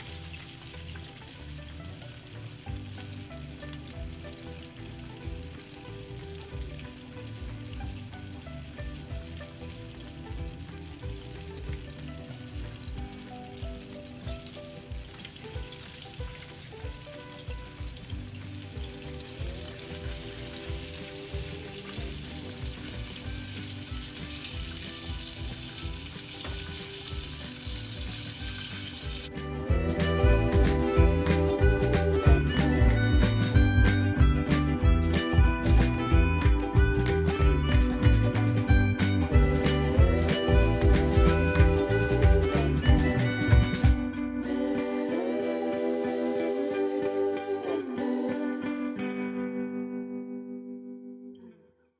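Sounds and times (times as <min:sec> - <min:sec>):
chicken frying in hot oil: 0:00.0 - 0:29.4
background music with beat: 0:00.0 - 0:49.0.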